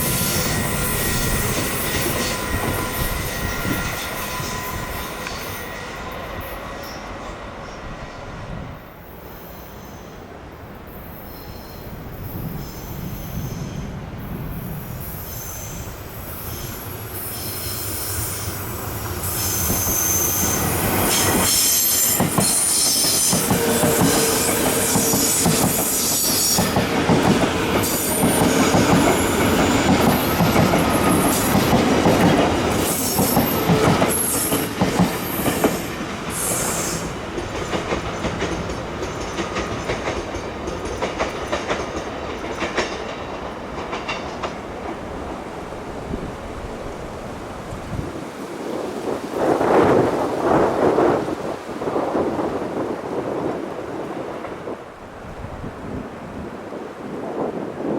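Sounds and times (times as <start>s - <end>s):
high wheel squeal: 0.0s - 7.8s, 19.2s - 26.7s
electric train passing: 0.0s - 57.9s.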